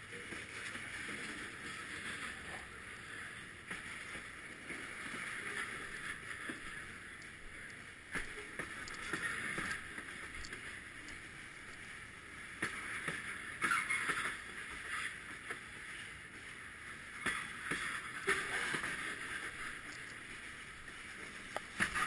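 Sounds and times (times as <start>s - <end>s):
freight cars rolling on rails: 0.0s - 22.0s.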